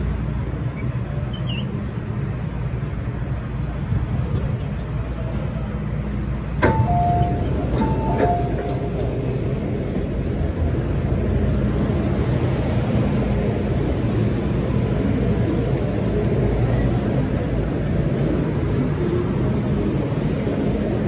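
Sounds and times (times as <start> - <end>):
train rumble: 0.0 - 21.0
two-note falling chime: 6.6 - 8.9.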